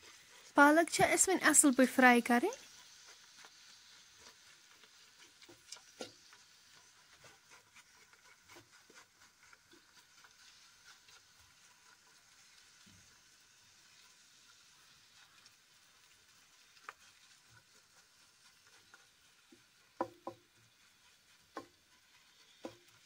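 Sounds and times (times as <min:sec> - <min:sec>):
spinach sizzling in oil: 0:00.0 - 0:23.0
wooden spoon scraping pot: 0:02.5 - 0:12.6, 0:16.3 - 0:23.0.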